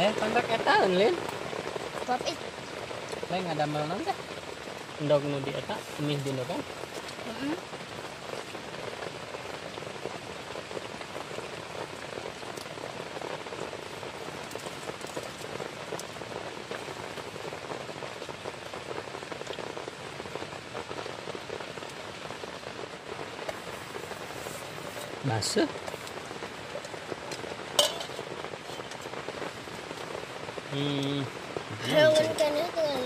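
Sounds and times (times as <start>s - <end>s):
heavy rain falling: 0.0s - 33.0s.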